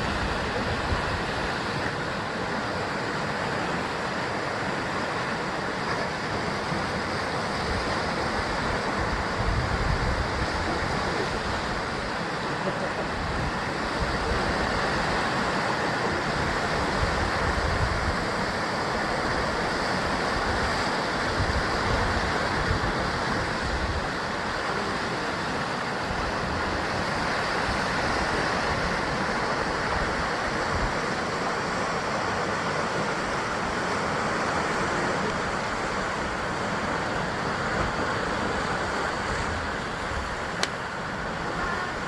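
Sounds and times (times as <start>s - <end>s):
surf breaking on rocky shore: 0.0s - 42.0s.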